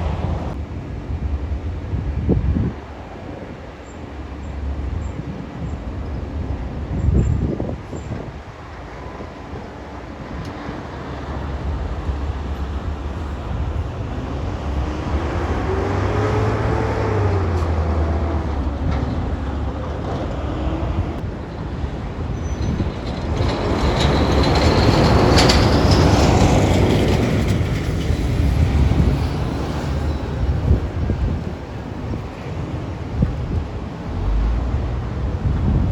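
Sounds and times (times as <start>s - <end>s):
heavy vehicle engine passing: 10.3s - 21.8s.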